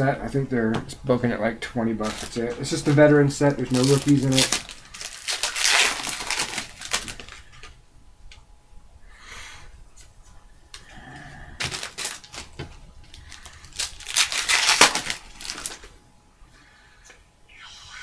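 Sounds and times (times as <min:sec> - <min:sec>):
packaging rustling: 0:02.0 - 0:07.8, 0:11.6 - 0:16.0.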